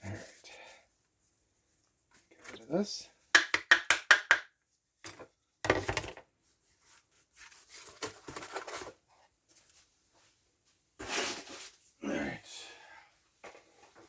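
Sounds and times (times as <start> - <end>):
objects clattering on work surface: 3.4 - 6.3, 7.8 - 9.0.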